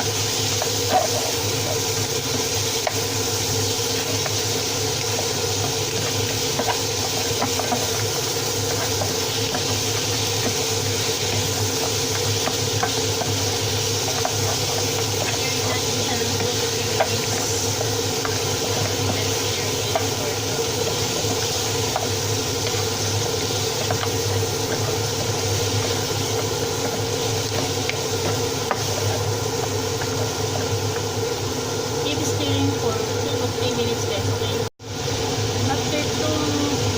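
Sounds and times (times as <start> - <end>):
meat sizzling in a pan: 0.0 - 36.9.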